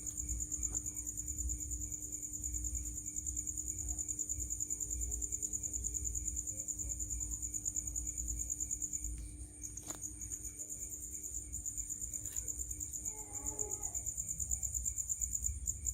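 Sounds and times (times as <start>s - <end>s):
cricket chirping: 0.0s - 15.9s
faint low hum: 0.0s - 15.9s.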